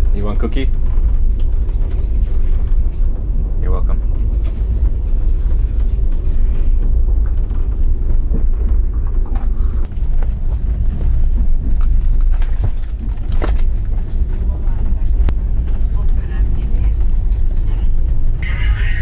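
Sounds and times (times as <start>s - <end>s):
faint clicks and rattles: 0.0s - 3.3s, 4.4s - 14.4s
railway carriage rumble: 0.0s - 19.0s.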